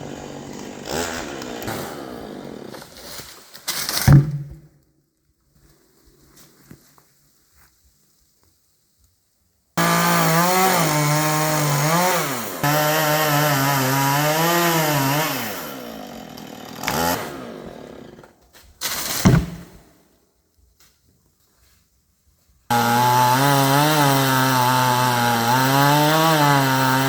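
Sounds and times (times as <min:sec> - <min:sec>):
chainsaw cutting wood: 0:00.0 - 0:04.6, 0:09.8 - 0:19.8, 0:22.7 - 0:27.0
sharp knock: 0:04.0 - 0:04.7, 0:19.2 - 0:19.8.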